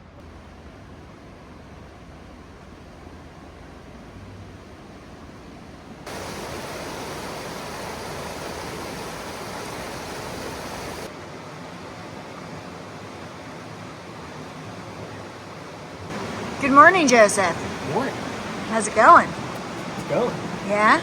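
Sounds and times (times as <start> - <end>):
steady rushing noise: 6.1 - 11.1, 16.1 - 21.0.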